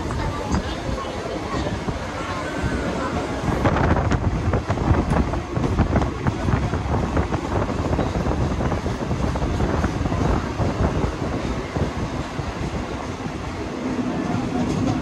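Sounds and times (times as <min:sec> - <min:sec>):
wind buffeting microphone: 0:00.0 - 0:15.0
train wheels clattering over rails: 0:03.5 - 0:15.0.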